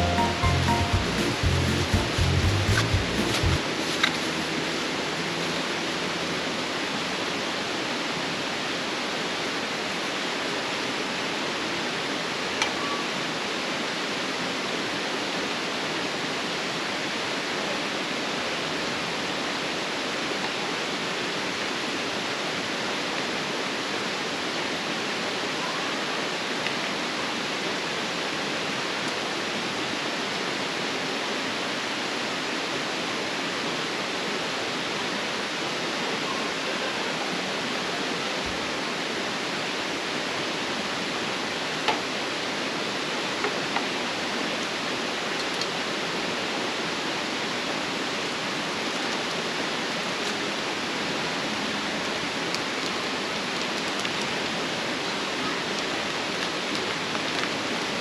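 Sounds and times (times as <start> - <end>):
steady rushing noise: 0.0 - 7.8.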